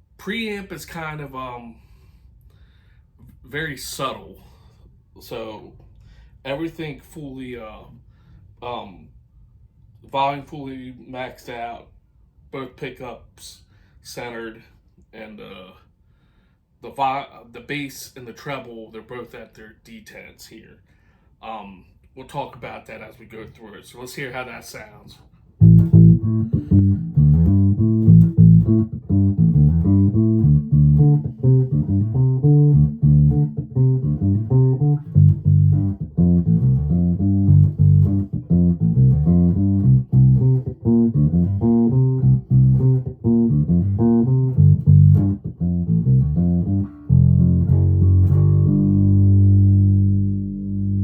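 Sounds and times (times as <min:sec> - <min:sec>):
electric bass plucked notes: 0:25.6 - 0:51.0.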